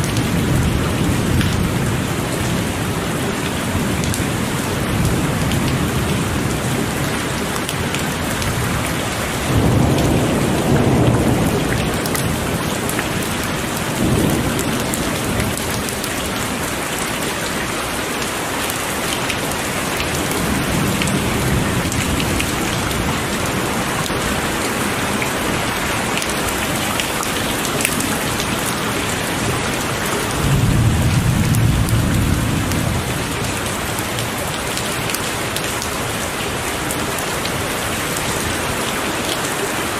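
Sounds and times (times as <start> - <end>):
heavy rain falling: 0.0 - 39.9
rolls of thunder: 30.4 - 33.4.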